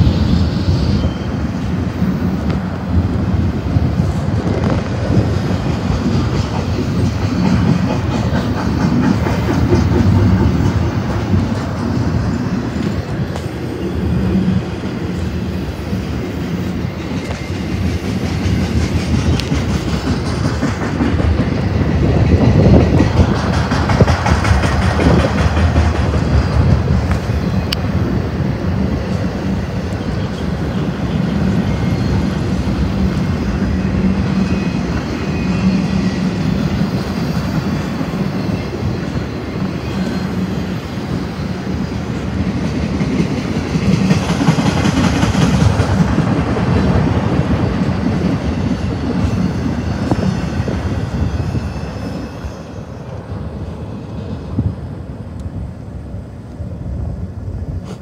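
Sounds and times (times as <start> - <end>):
freight train rolling past: 0.0 - 58.0.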